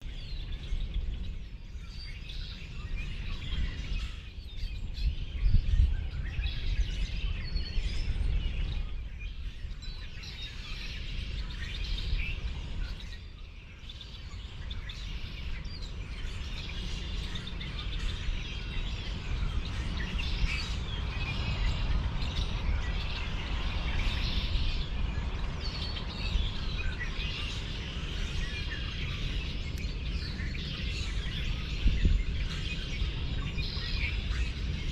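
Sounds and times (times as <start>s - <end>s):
small birds chirping: 0.0s - 34.9s
steady low rumble: 14.4s - 34.9s.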